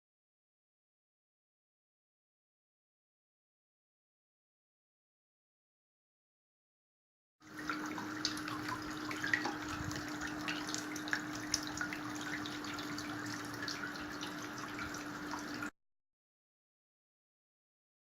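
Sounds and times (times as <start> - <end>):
fountain water trickling: 7.4 - 15.7
water pump hum: 7.4 - 15.7.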